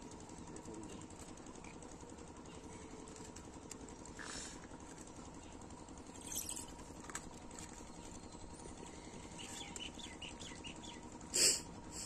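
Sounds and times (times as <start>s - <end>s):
faint bird chirps: 7.9s - 11.1s.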